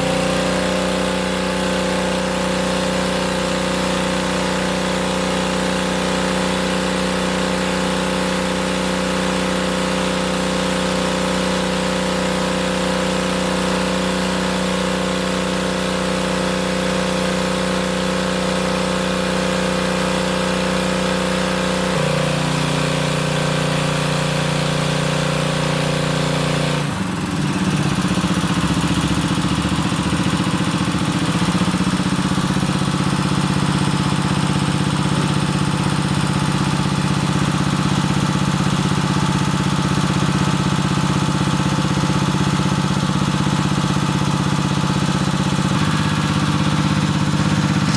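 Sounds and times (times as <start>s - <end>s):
engine humming: 45.4s - 47.9s.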